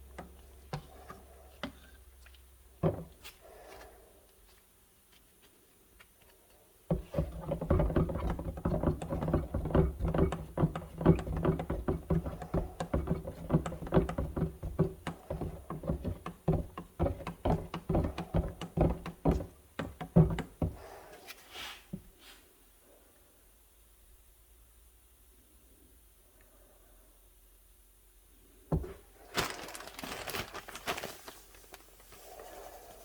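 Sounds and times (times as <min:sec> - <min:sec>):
coating being mixed by hand: 0:06.2 - 0:20.8
knocks and clatters in container: 0:06.9 - 0:20.8.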